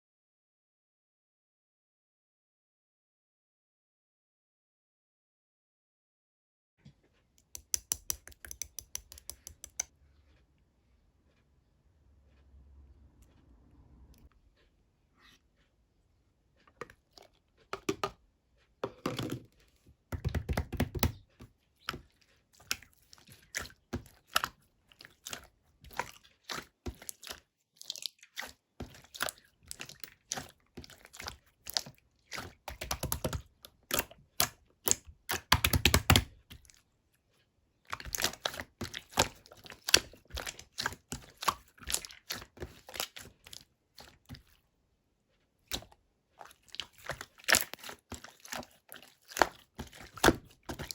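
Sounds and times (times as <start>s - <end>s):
slime squishing with wet clicks: 7.2s - 10.6s, 13.2s - 18.8s, 19.5s - 50.9s.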